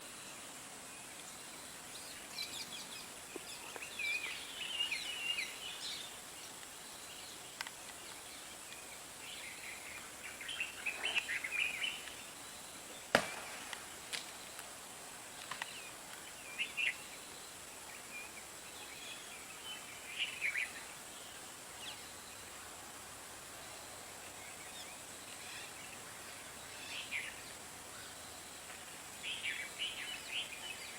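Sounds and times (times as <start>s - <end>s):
steady background hiss: 0.0s - 30.9s
birds chirping: 1.4s - 14.6s, 15.5s - 22.5s.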